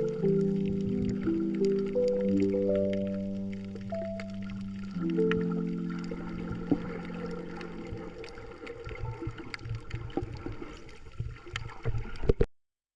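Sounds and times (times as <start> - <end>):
held music chord: 0.0 - 8.5
water sloshing and gurgling: 0.0 - 12.5.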